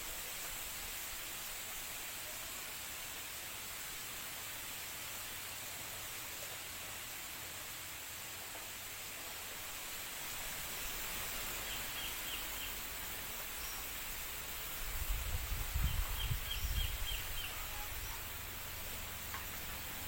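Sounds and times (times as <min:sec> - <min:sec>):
wind blowing: 0:14.2 - 0:20.0.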